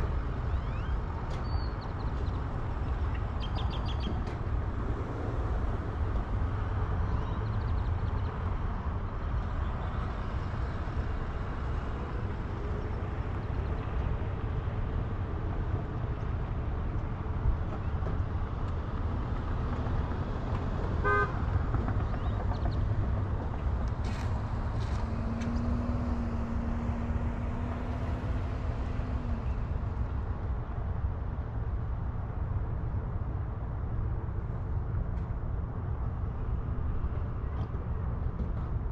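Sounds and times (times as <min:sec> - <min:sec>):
vehicle road and wind rumble: 0:00.0 - 0:38.9.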